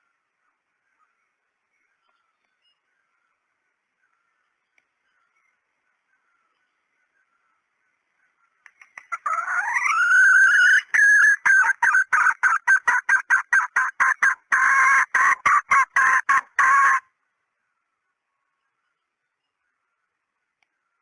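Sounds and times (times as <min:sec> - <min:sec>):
hen cackling: 0:09.0 - 0:17.1.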